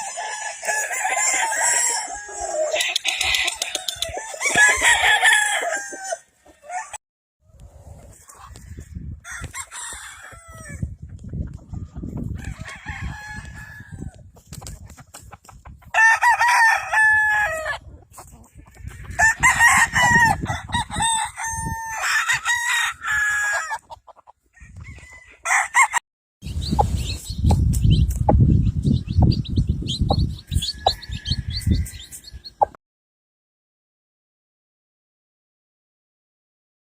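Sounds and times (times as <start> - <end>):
roosters crowing: 0.0 - 7.0, 8.2 - 10.9, 12.2 - 14.2, 15.9 - 23.9, 24.5 - 26.0, 30.2 - 32.5.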